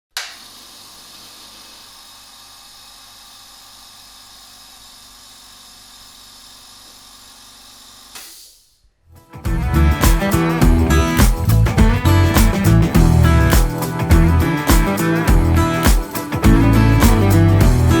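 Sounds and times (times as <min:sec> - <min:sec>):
air compressor running: 0:00.2 - 0:08.2.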